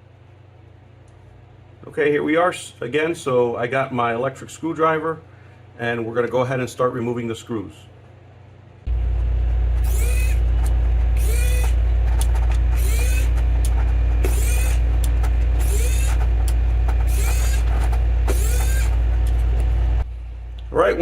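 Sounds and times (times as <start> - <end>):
electric screwdriver humming: 9.7 - 19.8
screwdriver chirp: 9.8 - 19.4.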